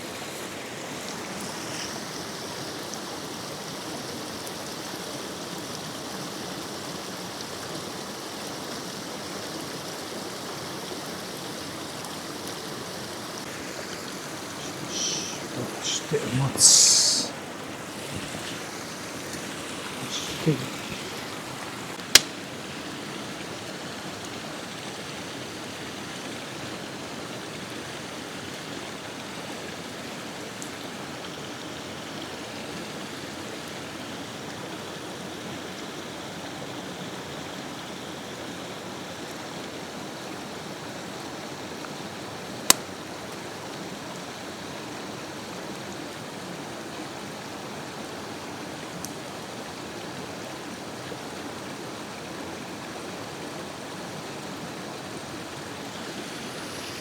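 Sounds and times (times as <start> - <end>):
pot hissing over flame: 0.0 - 2.7, 13.3 - 22.3, 55.7 - 57.0.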